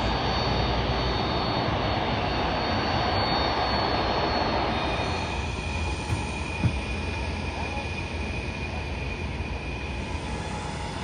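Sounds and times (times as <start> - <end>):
jet engine roar with whine: 0.0 - 11.0.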